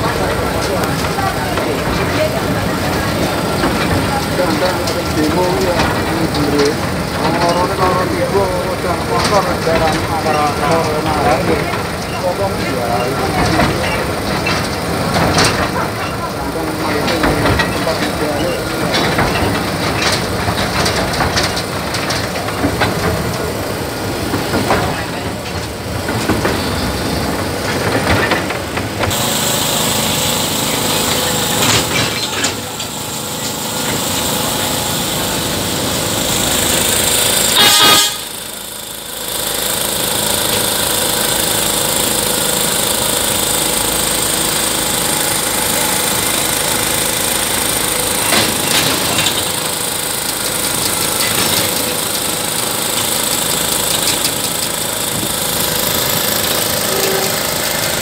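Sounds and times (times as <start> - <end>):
locomotive engine running: 0.0 - 58.0
wheels clattering on track: 0.0 - 58.0
locomotive horn: 37.4 - 38.5, 56.8 - 57.7.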